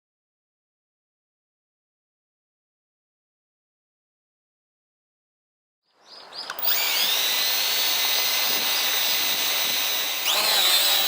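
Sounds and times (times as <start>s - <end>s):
electric power tool whining: 6.2s - 11.0s.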